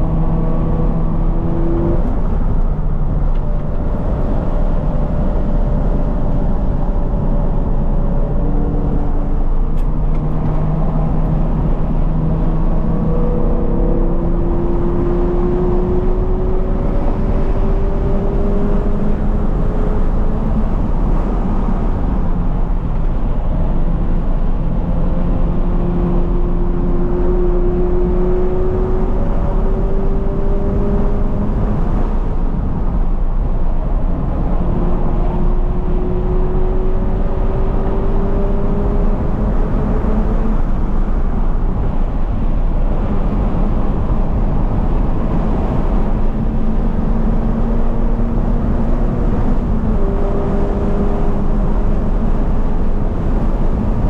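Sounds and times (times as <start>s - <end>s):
car engine revving: 0.0s - 54.0s
road and tyre noise: 0.0s - 54.0s.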